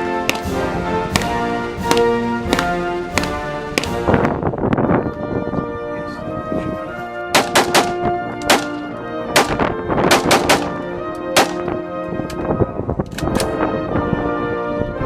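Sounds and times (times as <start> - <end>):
rapid gunshots: 0.0 - 4.3, 10.1 - 10.8
background music sustained tones: 0.0 - 15.0.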